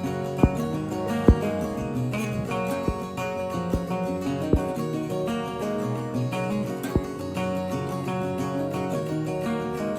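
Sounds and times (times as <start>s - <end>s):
strummed acoustic guitar music: 0.0s - 9.9s.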